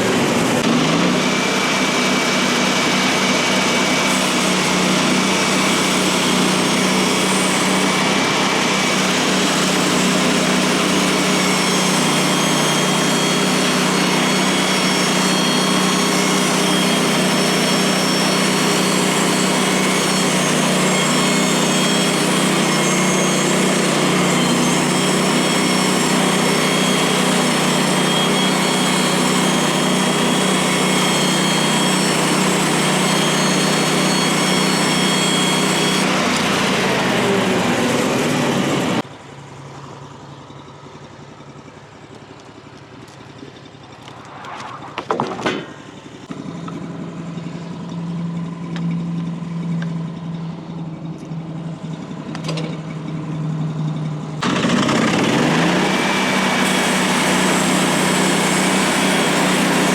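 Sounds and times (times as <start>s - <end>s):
saw blade cutting log: 0.0s - 39.1s, 43.9s - 46.9s, 54.4s - 59.9s
gasoline engine running: 0.0s - 59.9s.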